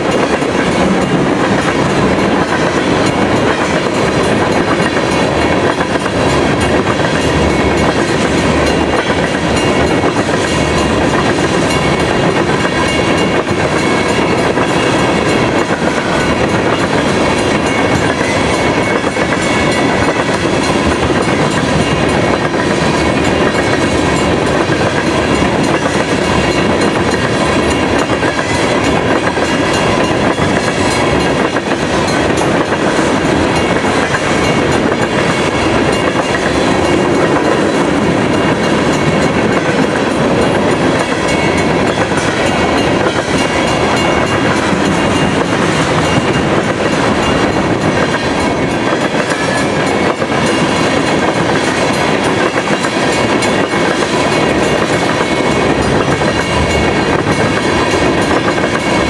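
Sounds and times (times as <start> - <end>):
freight train wheels rumbling on rails: 0.0 - 59.0
train wheels clickety-clack: 0.0 - 59.0.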